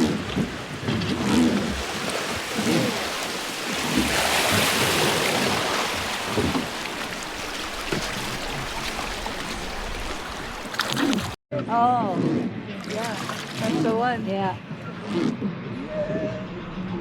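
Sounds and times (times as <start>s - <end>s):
river water rushing: 0.0s - 11.4s.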